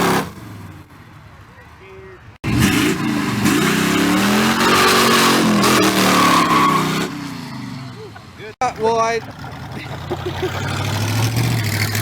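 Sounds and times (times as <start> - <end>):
tyre and exhaust rush: 0.0 - 12.0
car engine revving: 2.4 - 12.0.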